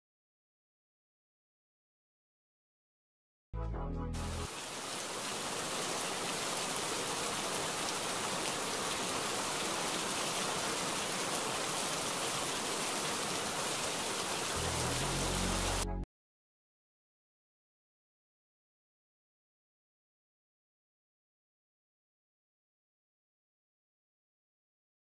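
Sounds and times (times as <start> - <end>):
hiss of water: 4.4 - 15.8.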